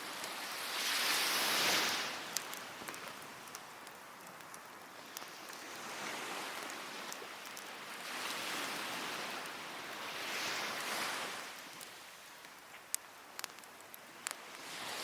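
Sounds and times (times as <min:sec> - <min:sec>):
small waves washing on beach: 0:00.0 - 0:15.0
wood fire crackle: 0:00.0 - 0:15.0.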